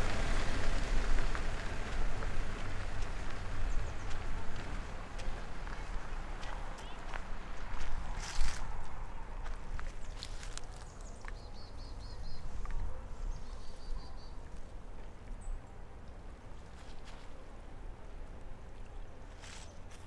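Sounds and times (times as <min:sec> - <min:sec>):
low rumble: 0:00.0 - 0:09.9.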